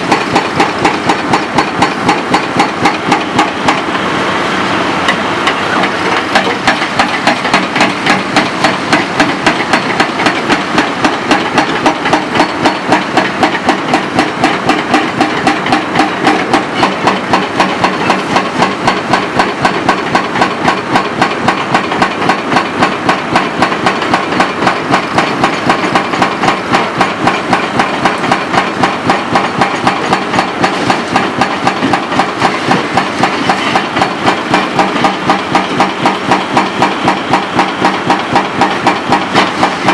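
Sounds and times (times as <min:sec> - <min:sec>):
diesel engine running: 0:00.0 - 0:39.9
hydraulic hammer blows: 0:00.0 - 0:39.9.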